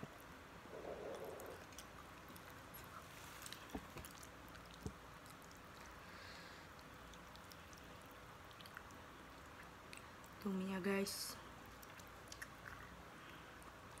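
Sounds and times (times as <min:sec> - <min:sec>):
chewing noodles: 0:00.7 - 0:10.4, 0:11.5 - 0:14.0.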